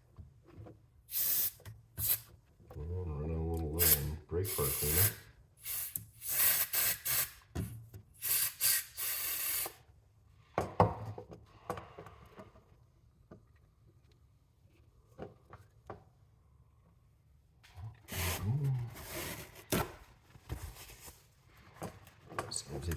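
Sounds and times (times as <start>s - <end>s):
aerosol spray hissing: 1.1s - 2.2s, 3.8s - 7.4s, 8.2s - 9.8s.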